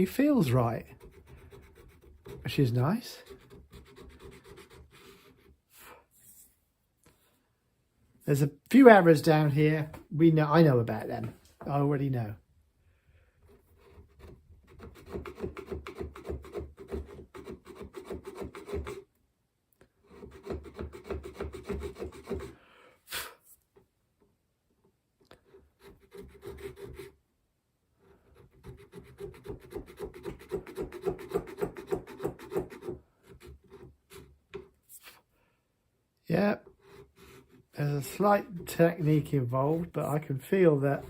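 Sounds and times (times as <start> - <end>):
tool rasping on wooden gunstock: 0.1 - 5.6, 13.4 - 19.1, 20.0 - 22.6, 25.3 - 27.2, 28.0 - 35.2, 36.6 - 41.0.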